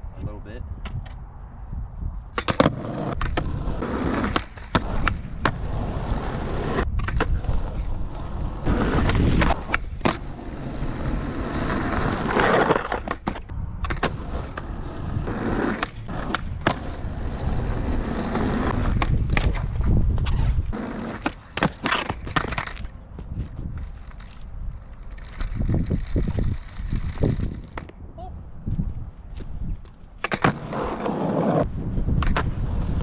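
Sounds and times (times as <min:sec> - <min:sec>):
skateboard wheels rolling on pavement: 0:00.8 - 0:33.0
skateboard clacks and slaps: 0:30.2 - 0:32.6.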